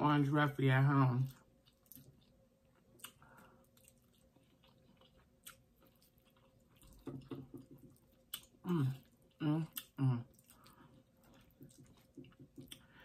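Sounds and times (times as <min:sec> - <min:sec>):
person chewing: 0:01.2 - 0:13.0
person humming: 0:08.7 - 0:10.3.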